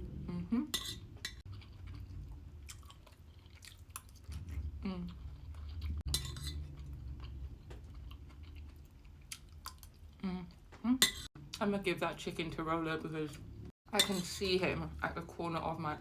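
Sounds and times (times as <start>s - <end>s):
person chewing food: 1.2s - 10.7s.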